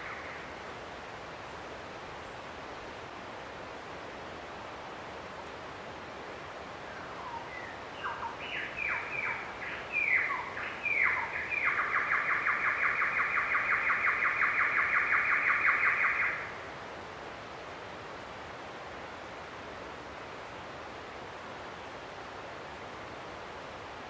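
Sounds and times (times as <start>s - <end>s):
background hiss: 0.0s - 24.0s
bird singing and trilling: 7.2s - 16.5s.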